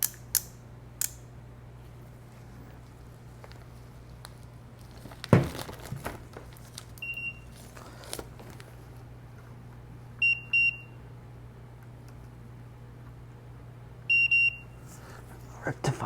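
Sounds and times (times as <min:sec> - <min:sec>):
steady low hum: 0:00.0 - 0:16.0
handling clatter: 0:03.4 - 0:08.8
multimeter beeps: 0:07.0 - 0:07.6, 0:10.2 - 0:11.0, 0:14.1 - 0:14.8.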